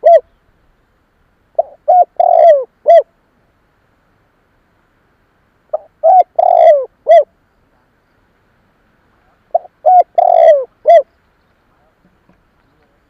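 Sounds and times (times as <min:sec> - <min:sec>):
dove cooing: 0:00.0 - 0:00.4, 0:01.6 - 0:03.1, 0:05.7 - 0:07.4, 0:09.2 - 0:11.1.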